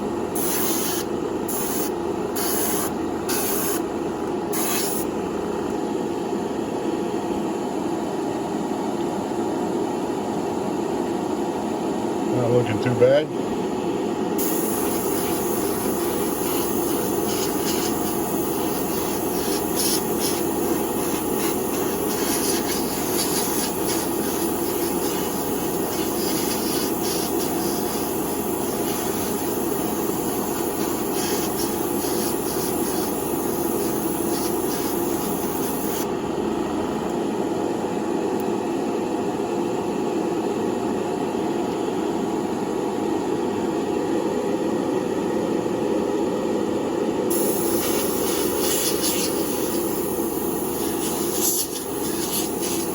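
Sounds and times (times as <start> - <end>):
air machine whooshing: 0.4 - 3.8, 4.5 - 5.1, 14.4 - 36.1, 47.3 - 52.9
high hiss: 14.4 - 36.0, 47.3 - 52.9.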